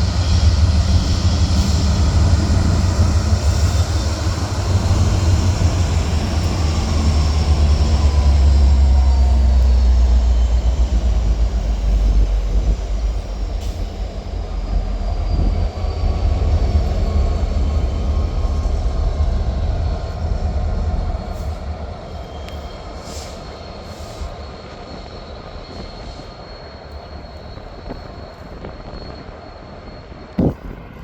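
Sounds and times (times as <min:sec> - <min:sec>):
train rumbling on tracks: 0:00.0 - 0:31.0
high wheel squeal: 0:19.8 - 0:31.0.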